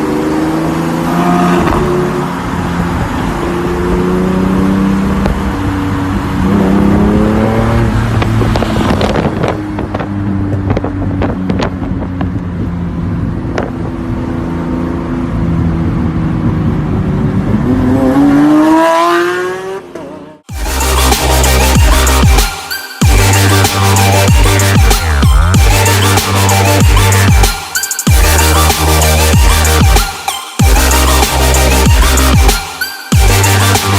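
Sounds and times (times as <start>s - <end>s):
car engine revving: 0.0s - 33.9s
exhaust pops and crackles: 8.1s - 12.5s.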